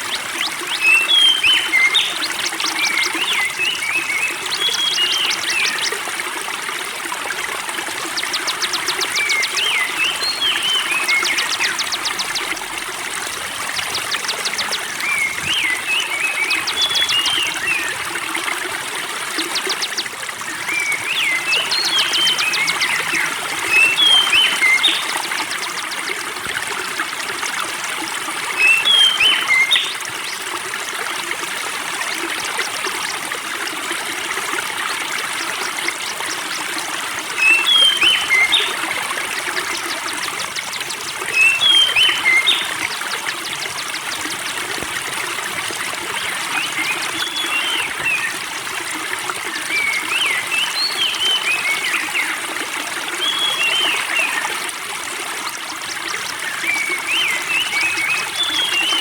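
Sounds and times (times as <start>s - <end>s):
songbird singing: 0.0s - 6.0s, 7.9s - 12.9s, 13.7s - 18.1s, 19.3s - 26.1s, 28.5s - 30.4s, 35.4s - 44.9s, 46.0s - 48.5s, 55.9s - 59.0s
water trickling: 0.0s - 59.0s.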